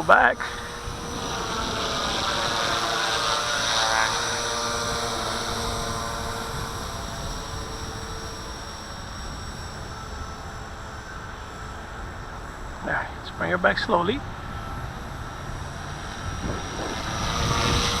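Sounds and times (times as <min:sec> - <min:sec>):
rc helicopter rotors whining: 0:00.0 - 0:18.0
wind buffeting microphone: 0:14.2 - 0:18.0.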